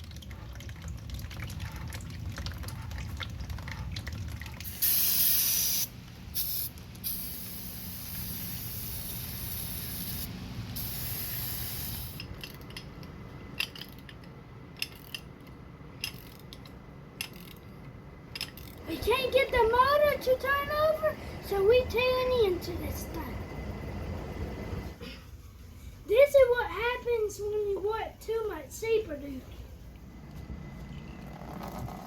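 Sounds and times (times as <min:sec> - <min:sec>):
aerosol spray can hissing: 0:04.7 - 0:12.2.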